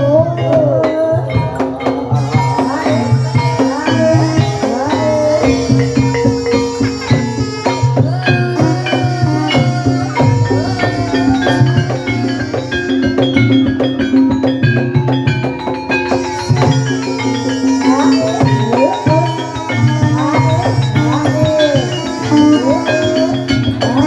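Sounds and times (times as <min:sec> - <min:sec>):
drumming: 0:00.0 - 0:24.0
low sustained tones: 0:02.0 - 0:15.0.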